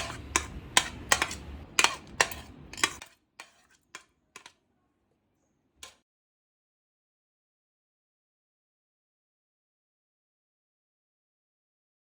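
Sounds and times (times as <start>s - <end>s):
eggs beaten in a bowl: 0.0s - 4.6s.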